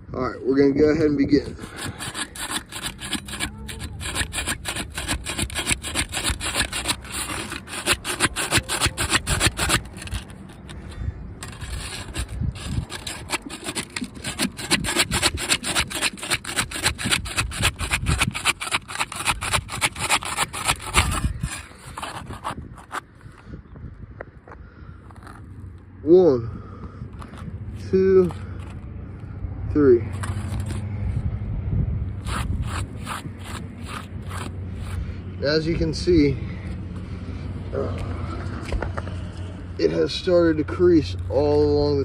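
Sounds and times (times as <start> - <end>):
tool scraping under shingle: 0.5 - 23.6, 26.6 - 28.9, 30.0 - 31.2, 32.2 - 42.0.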